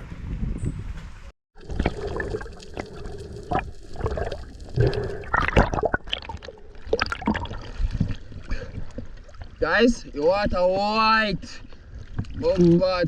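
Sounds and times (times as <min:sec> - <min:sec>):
water knocks and sloshes: 0:01.6 - 0:09.6, 0:11.4 - 0:13.0
sea water splashing and gurgling: 0:01.6 - 0:13.0.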